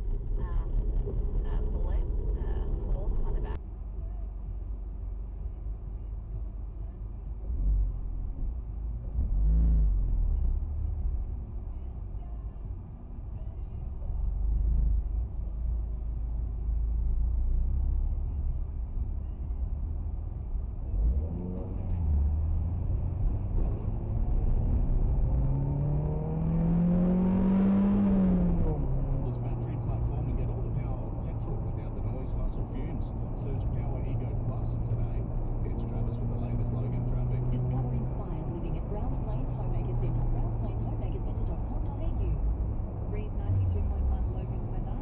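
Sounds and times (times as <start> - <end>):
vehicle engine and road noise: 0.0 - 45.0
engine revving: 9.0 - 11.4, 19.8 - 45.0.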